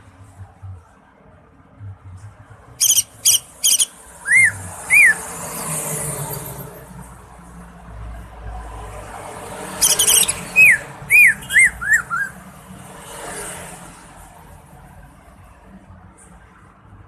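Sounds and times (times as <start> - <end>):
bird harsh high notes: 2.8 - 5.2, 9.8 - 12.4
bird whistled descending notes: 2.8 - 5.2, 9.8 - 12.4.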